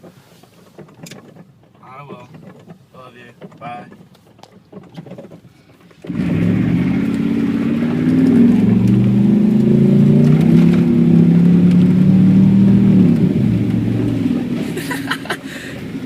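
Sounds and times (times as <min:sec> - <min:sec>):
car engine running loudly: 0:06.0 - 0:16.0.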